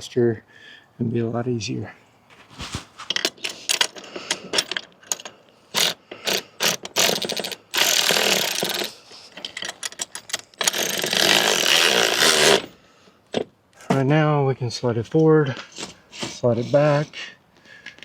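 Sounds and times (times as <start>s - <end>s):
ratchet wrench clicking: 5.8s - 8.9s.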